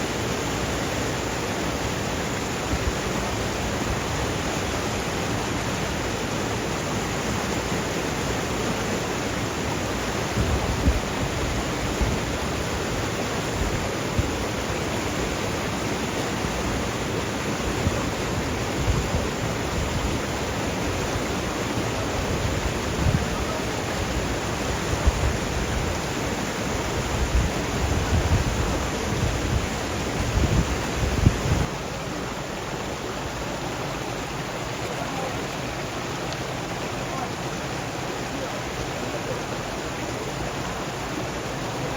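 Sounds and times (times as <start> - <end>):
stream water flowing: 0.0 - 41.9
wind buffeting microphone: 10.3 - 12.8, 17.8 - 20.3, 22.1 - 31.7.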